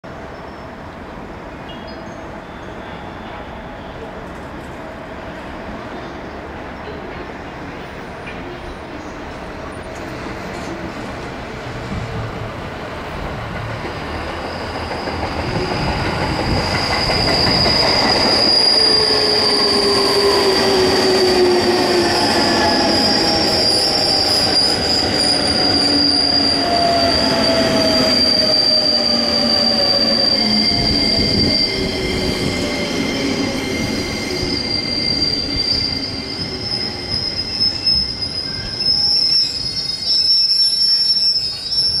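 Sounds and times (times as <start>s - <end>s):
train wheels rumbling on rails: 3.2s - 40.1s
high squeal with falling tones: 14.3s - 42.0s.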